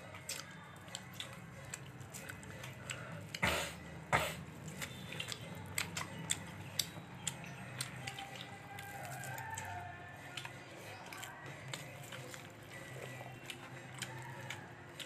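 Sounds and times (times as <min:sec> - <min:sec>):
person chewing food: 0:00.0 - 0:15.0
wet clicks and lip smacks: 0:04.8 - 0:08.6.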